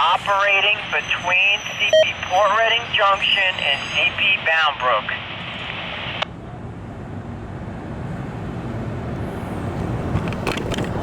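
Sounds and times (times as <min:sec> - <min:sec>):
radio scanner hissing: 0:00.0 - 0:06.2.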